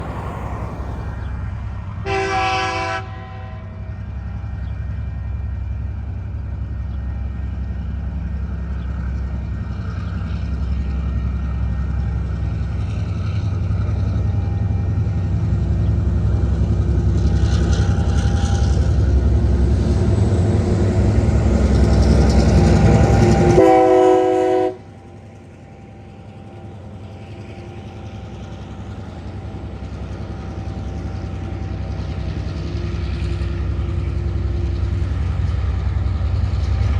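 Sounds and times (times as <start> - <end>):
locomotive engines rumbling: 0.0 - 36.9
locomotive horn blasts: 2.0 - 3.8, 23.0 - 24.9.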